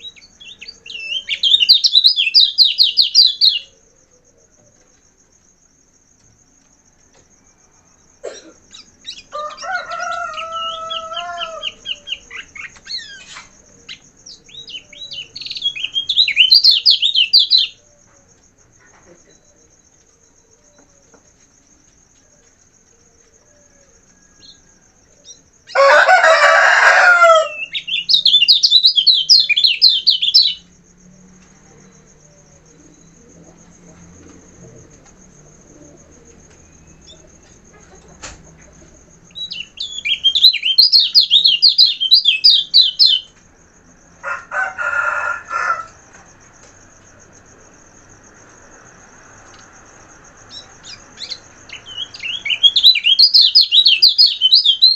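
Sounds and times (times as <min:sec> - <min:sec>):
songbird chattering warbles: 0:00.0 - 0:03.8, 0:10.9 - 0:17.8, 0:36.0 - 0:43.3, 0:50.5 - 0:54.9
harsh bird calls: 0:00.0 - 0:04.2, 0:08.0 - 0:18.1, 0:25.3 - 0:30.7, 0:35.8 - 0:43.4, 0:50.5 - 0:54.9.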